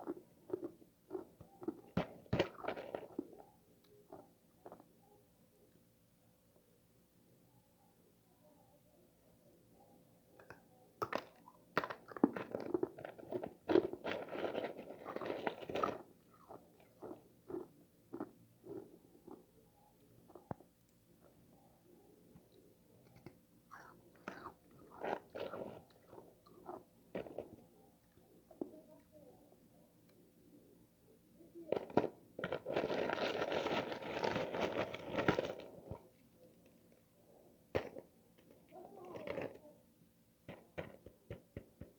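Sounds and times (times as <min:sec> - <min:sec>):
freezer frost crunching: 0:00.0 - 0:03.4, 0:11.1 - 0:18.9, 0:23.7 - 0:27.5, 0:31.7 - 0:36.1
person crunching frost: 0:12.3 - 0:17.6, 0:31.9 - 0:35.8.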